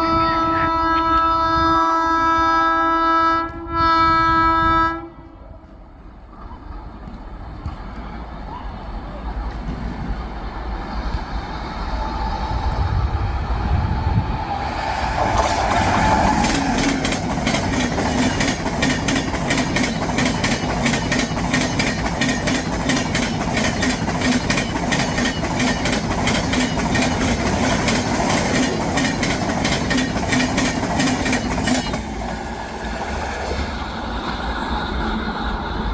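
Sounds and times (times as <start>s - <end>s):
train passing hum: 0.0s - 35.9s
train wheels clickety-clack: 9.4s - 10.3s, 14.7s - 35.9s.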